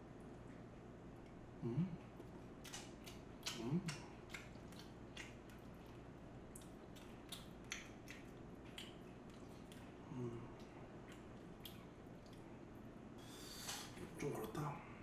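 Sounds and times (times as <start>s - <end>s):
person chewing food: 2.0s - 14.5s
wet mouth clicks and smacks: 2.2s - 10.0s, 10.6s - 12.5s.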